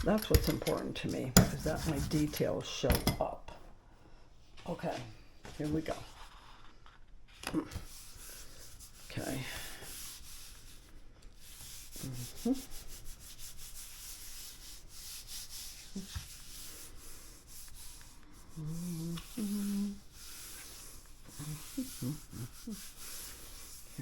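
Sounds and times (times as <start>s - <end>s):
paper scuffing on printing plate: 0.0s - 2.8s
person humming: 18.6s - 20.0s, 21.3s - 22.9s.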